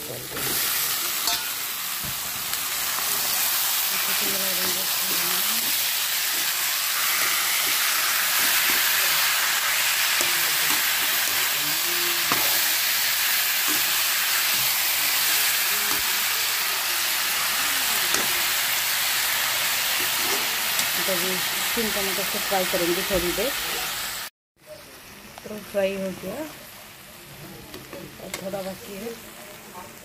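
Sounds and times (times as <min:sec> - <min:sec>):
food sizzling in oil: 0:00.0 - 0:30.0
spatula scraping a pan: 0:05.5 - 0:09.0.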